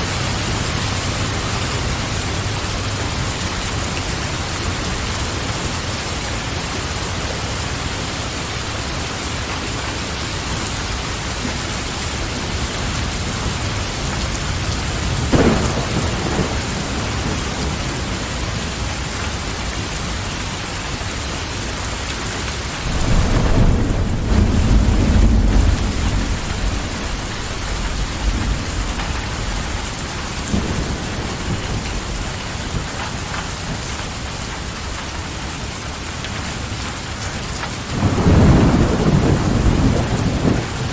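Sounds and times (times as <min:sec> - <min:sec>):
thunder rumbling: 0:00.0 - 0:20.9, 0:22.7 - 0:35.0, 0:37.8 - 0:40.9
steady rain falling: 0:00.0 - 0:40.9
thunder crack: 0:12.5 - 0:18.7, 0:22.8 - 0:33.4, 0:37.9 - 0:40.9.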